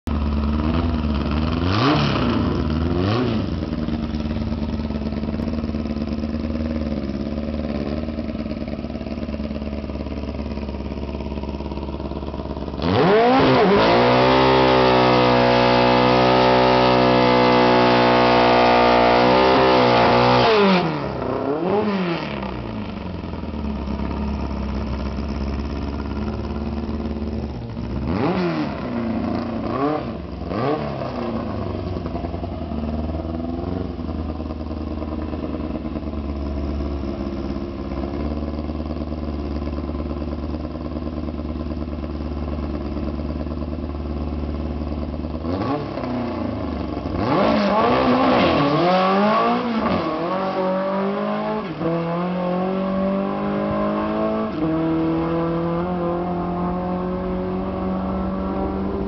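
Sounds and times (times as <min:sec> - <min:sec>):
engine revving: 0:00.5 - 0:05.5, 0:12.6 - 0:23.1, 0:25.8 - 0:32.3, 0:45.4 - 0:59.0.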